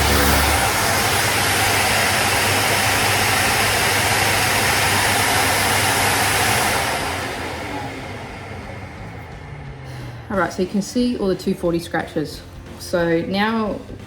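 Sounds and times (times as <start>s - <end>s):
orbital sander running: 0.0s - 11.1s.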